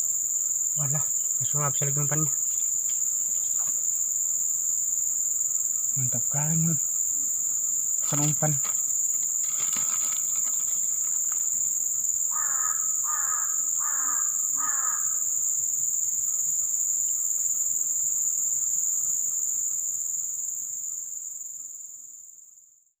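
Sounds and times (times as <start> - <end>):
high-pitched insect chorus: 0.0 - 23.0
bird calling: 12.3 - 15.2.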